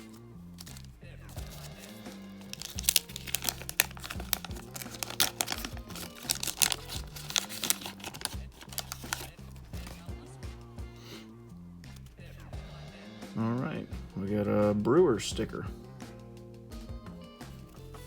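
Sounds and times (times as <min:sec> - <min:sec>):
wrapper tearing and crinkling: 0:00.0 - 0:10.0
background music with bass line: 0:00.0 - 0:18.0.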